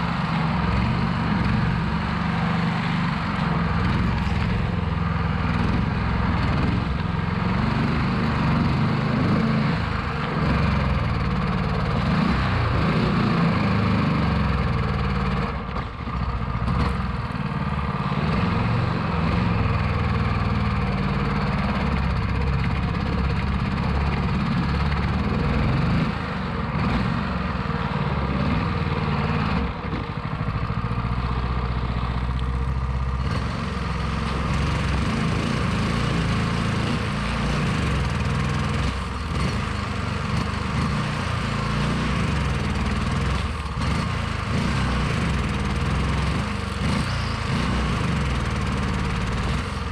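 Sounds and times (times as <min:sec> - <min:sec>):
boat motor running under load: 0:00.0 - 0:49.9.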